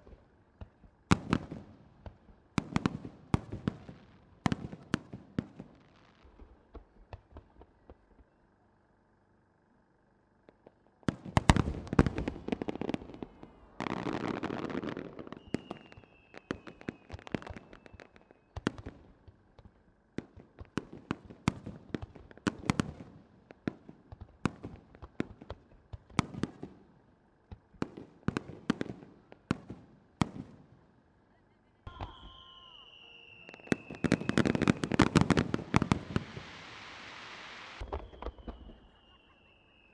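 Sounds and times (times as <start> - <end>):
firework crackling: 11.3 - 18.2, 31.9 - 39.9.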